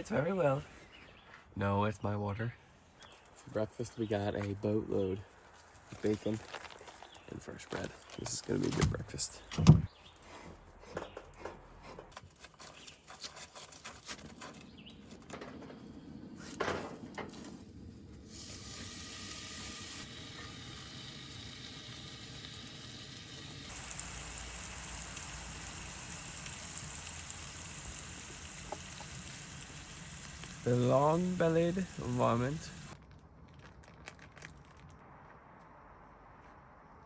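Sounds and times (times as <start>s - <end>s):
bacon sizzling in a pan: 18.3s - 33.0s.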